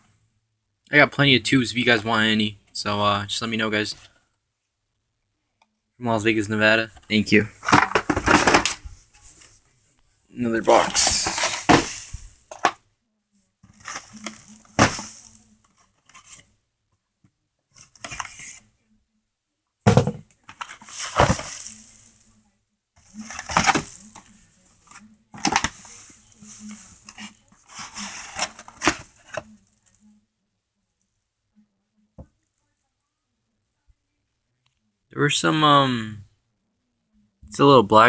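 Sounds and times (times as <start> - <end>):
cardboard box rustling and scraping: 7.6 - 9.5, 10.7 - 12.8, 13.7 - 15.4, 19.9 - 22.0, 23.0 - 29.5.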